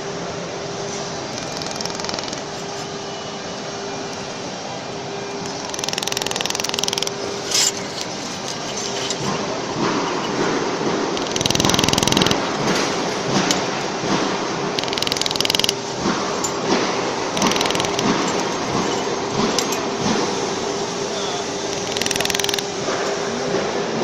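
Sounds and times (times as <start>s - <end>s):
steady machine hum: 0.0s - 24.0s
laser welder buzzing pulses: 5.4s - 8.2s, 11.1s - 13.4s, 14.2s - 15.9s.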